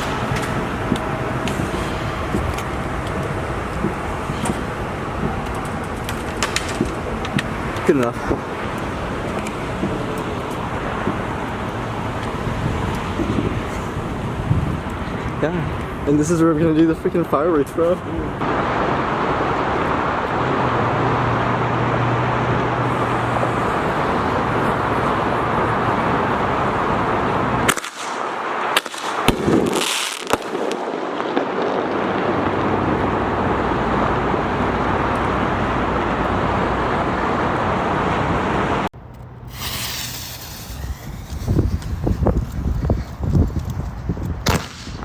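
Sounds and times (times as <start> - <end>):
firework hiss: 0.0 - 16.0, 22.9 - 26.9, 27.6 - 31.7, 39.5 - 45.0
wind on microphone: 0.0 - 16.8, 39.5 - 45.0
firework pops: 27.7 - 31.7, 39.5 - 45.0
rapid crackling pops: 39.5 - 45.0.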